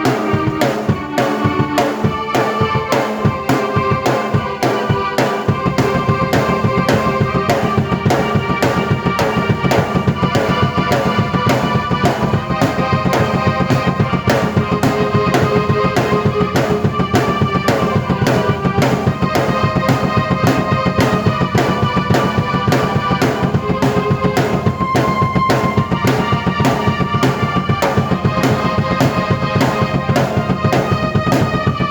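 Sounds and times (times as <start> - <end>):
fast drum beat: 0.0 - 31.9
keyboard chords and melody: 0.0 - 31.9.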